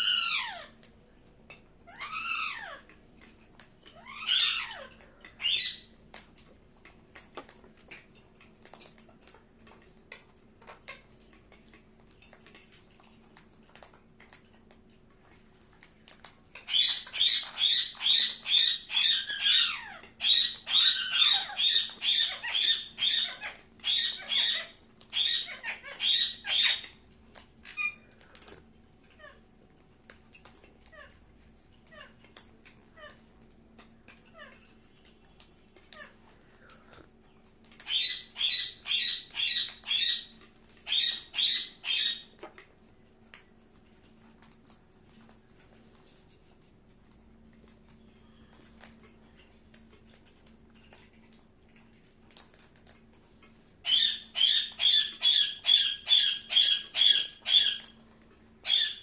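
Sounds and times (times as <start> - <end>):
parakeet calling: 0.0 - 0.7, 1.9 - 2.8, 3.9 - 6.0, 16.6 - 27.0, 27.6 - 28.0, 37.8 - 42.4, 53.8 - 57.9, 58.6 - 59.0
parakeet squawking rapidly: 0.0 - 0.8, 1.9 - 2.9, 3.9 - 5.9, 16.6 - 27.0, 37.8 - 42.3, 53.8 - 57.9, 58.6 - 59.0.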